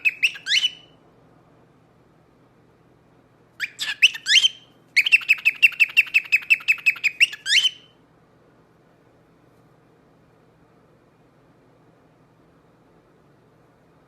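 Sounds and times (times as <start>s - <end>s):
parrot chirping: 0.0s - 1.0s, 3.6s - 8.0s.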